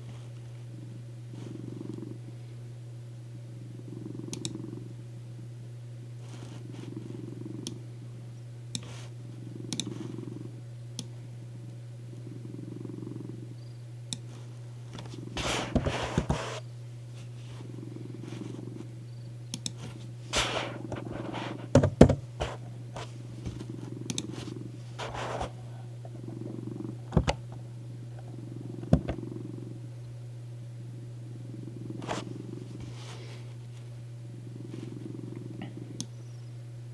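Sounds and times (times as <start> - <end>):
cat purring: 0.0 - 2.5, 3.7 - 5.0, 6.2 - 8.1, 8.8 - 10.6, 12.1 - 16.6, 17.2 - 19.0, 19.6 - 29.9, 31.3 - 36.1
rustles and crackles: 6.2 - 7.0, 14.2 - 18.9, 19.7 - 26.3, 32.0 - 34.1.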